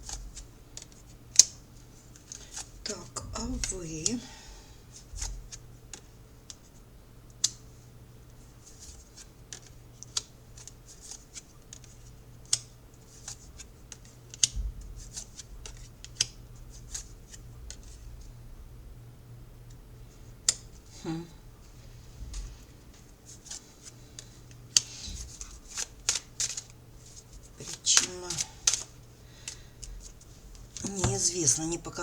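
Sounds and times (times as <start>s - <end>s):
cards being shuffled: 8.6s - 18.0s, 22.4s - 31.7s.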